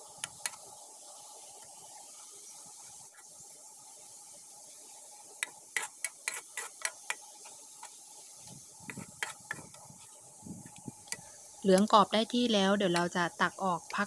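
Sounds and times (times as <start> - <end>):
shallots sizzling in oil: 0.0 - 14.0.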